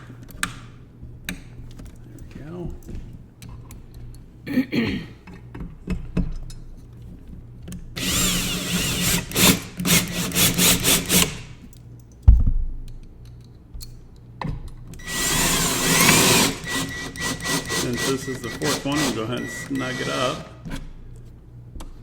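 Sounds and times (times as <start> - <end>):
drill driver motor whine: 8.0 - 11.3, 15.0 - 20.8.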